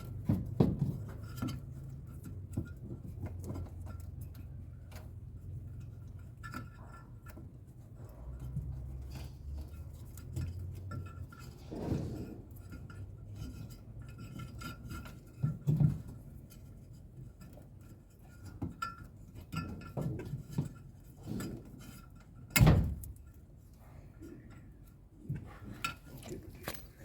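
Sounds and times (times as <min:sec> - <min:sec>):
metal tools clinking and knocking: 0:24.4 - 0:27.0.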